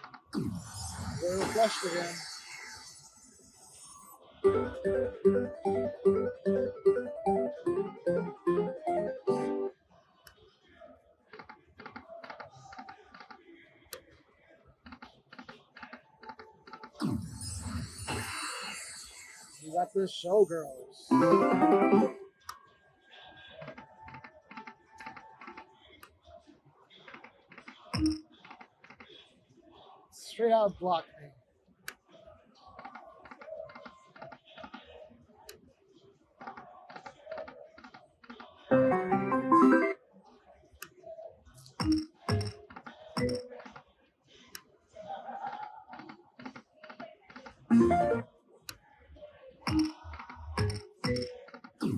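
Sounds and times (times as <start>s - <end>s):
slot machine reel clicks: 0.6s - 3.0s, 21.1s - 22.2s
slot machine reels clicking: 0.6s - 9.6s, 21.1s - 22.2s.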